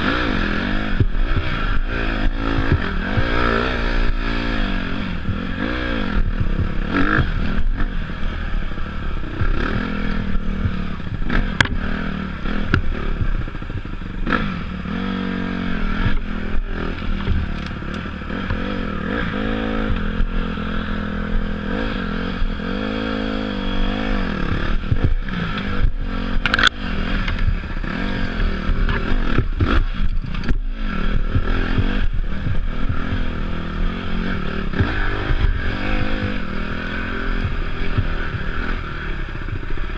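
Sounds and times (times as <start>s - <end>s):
dirt bike engine revving: 0.0s - 39.9s
bike knocks and rattles: 10.6s - 14.4s, 16.0s - 20.1s, 24.6s - 33.2s.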